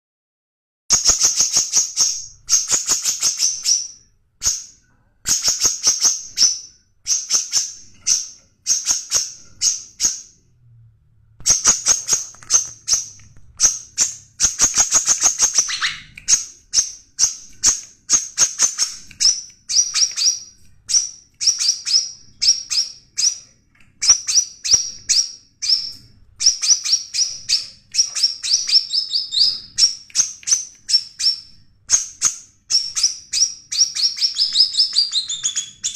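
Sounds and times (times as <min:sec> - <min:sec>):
songbird chirping: 0:11.4 - 0:35.9.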